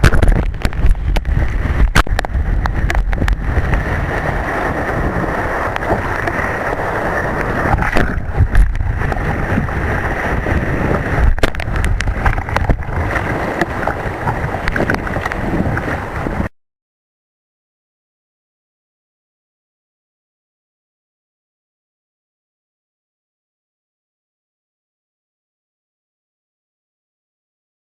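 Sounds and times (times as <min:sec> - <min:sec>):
rushing surf: 0:00.0 - 0:16.5
wind buffeting microphone: 0:00.0 - 0:16.5.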